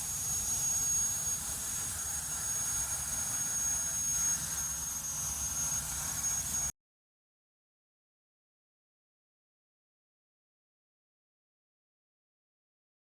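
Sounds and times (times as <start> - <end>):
plasma torch cutting steel: 0.0 - 6.7.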